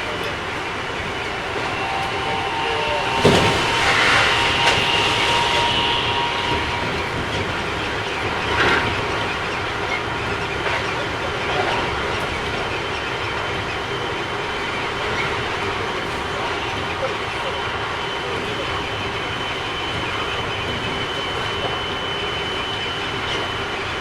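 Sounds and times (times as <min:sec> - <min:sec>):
train rolling rail noise: 0:00.0 - 0:24.0
faint high whine: 0:01.0 - 0:08.9.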